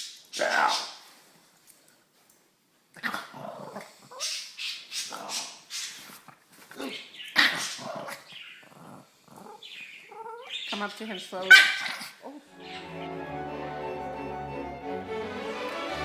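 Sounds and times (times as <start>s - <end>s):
dog growling and barking: 3.0s - 4.3s, 6.8s - 10.5s, 11.5s - 12.3s.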